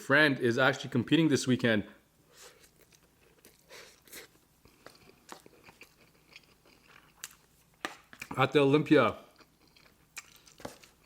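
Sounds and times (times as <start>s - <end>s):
person chewing: 2.3s - 8.4s, 9.3s - 11.0s.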